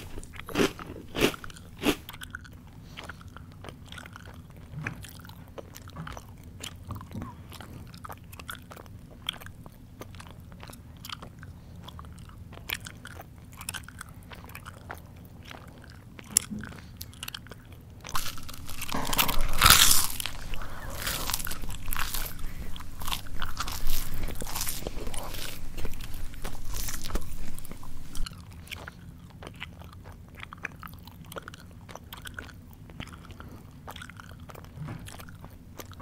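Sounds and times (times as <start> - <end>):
person chewing: 0.0 - 36.0
loud crunching: 18.1 - 28.3.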